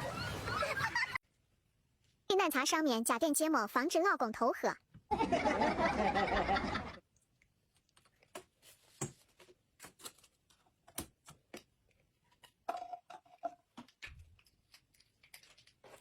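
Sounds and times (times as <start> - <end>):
kitchen items clicking and tapping: 12.3 - 16.0.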